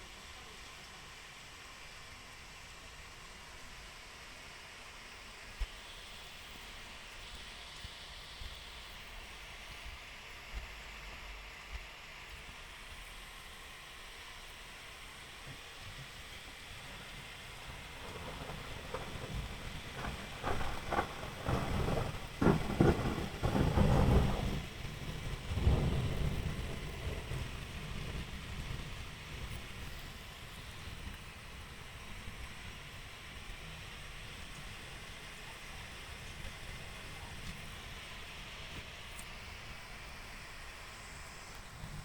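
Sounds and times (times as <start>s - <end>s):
rain hissing: 0.0s - 42.0s
thunder rumbling: 16.8s - 30.0s.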